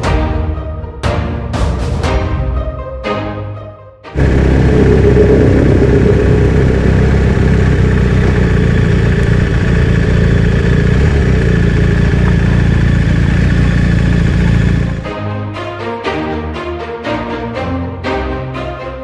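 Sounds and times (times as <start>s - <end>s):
motorcycle engine running: 4.2s - 15.1s.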